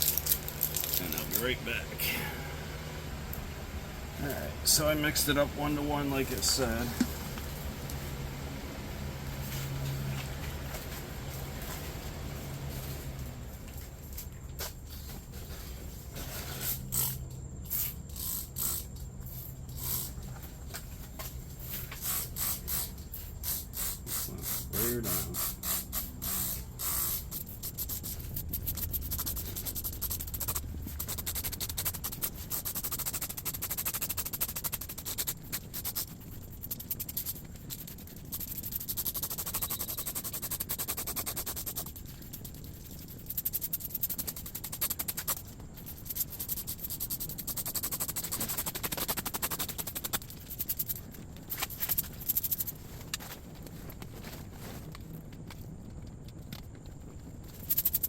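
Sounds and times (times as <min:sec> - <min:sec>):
spray bottle hissing squirts: 0:22.0 - 0:28.2.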